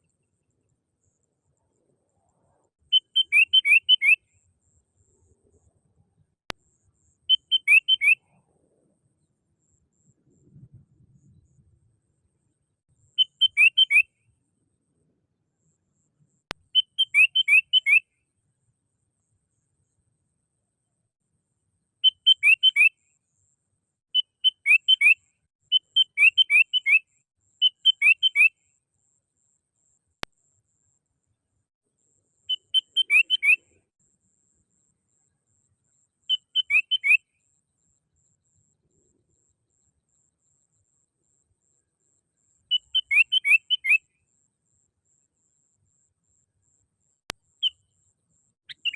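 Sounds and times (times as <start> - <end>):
bird whistling calls: 2.9 - 4.2, 7.3 - 8.2, 13.2 - 14.1, 16.8 - 18.1, 22.0 - 23.0, 24.2 - 27.0, 27.6 - 28.6, 32.5 - 33.8, 36.3 - 37.2, 42.7 - 44.1, 48.7 - 48.9.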